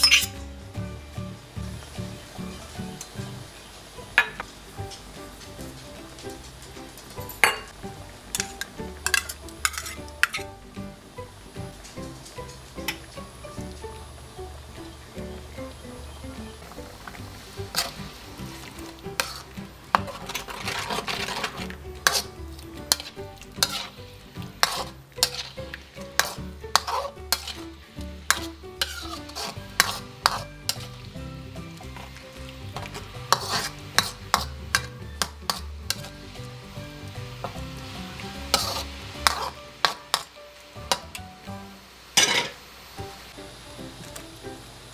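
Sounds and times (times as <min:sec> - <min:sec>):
metal spatula scraping wok: 0:00.0 - 0:00.6, 0:04.2 - 0:10.6, 0:16.6 - 0:41.2, 0:42.2 - 0:42.7
sauce sizzling: 0:00.0 - 0:44.9.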